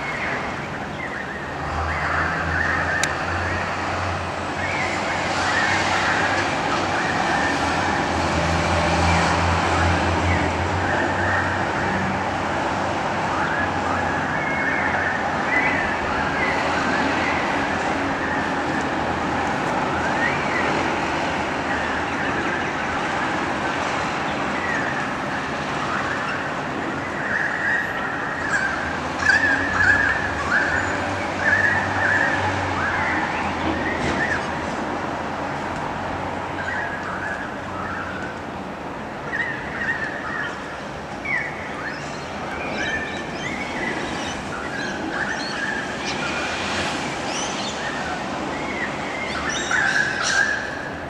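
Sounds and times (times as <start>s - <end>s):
steady traffic noise: 0.0s - 51.0s
birds chirping and squawking: 48.7s - 50.9s.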